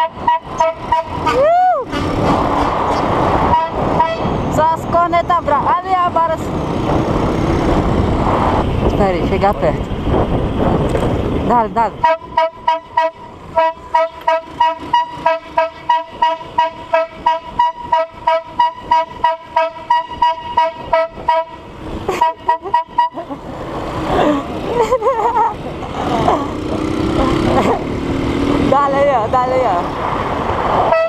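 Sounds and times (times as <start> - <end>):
two-tone car horn blasts: 0.0 - 2.1, 3.5 - 4.4, 12.0 - 23.2.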